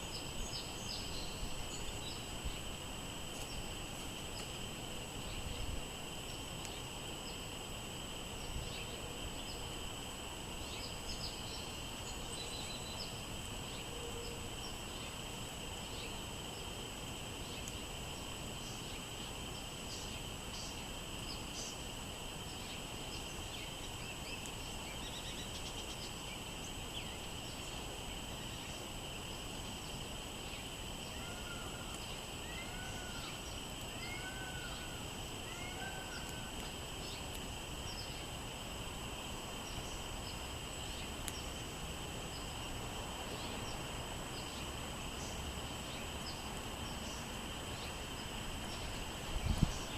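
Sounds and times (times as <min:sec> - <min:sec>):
songbird chirps: 0:00.0 - 0:07.6, 0:10.6 - 0:16.8, 0:17.4 - 0:38.4, 0:39.1 - 0:49.9
wind rumbling on microphone: 0:48.9 - 0:49.9.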